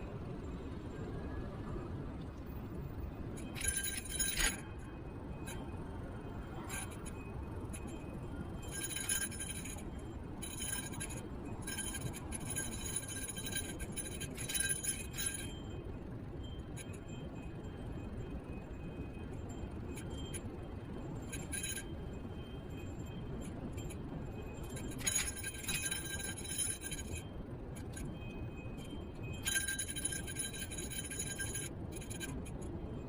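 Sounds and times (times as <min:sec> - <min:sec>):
metallic clinking and rattling: 0:03.4 - 0:04.7, 0:08.6 - 0:15.6, 0:23.5 - 0:32.7.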